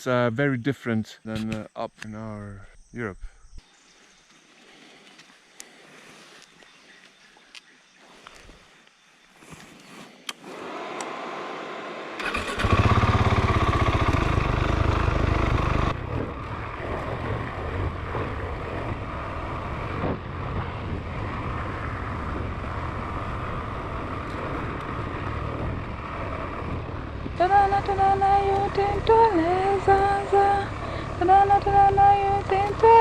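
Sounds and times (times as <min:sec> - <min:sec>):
motorcycle engine starting and running: 0:10.3 - 0:33.0.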